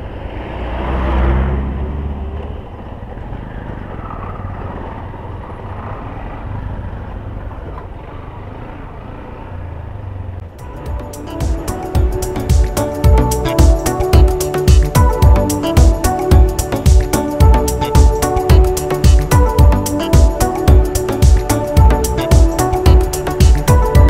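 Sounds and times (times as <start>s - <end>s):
road rumble: 0.0s - 24.0s
motorcycle engine running: 2.3s - 24.0s.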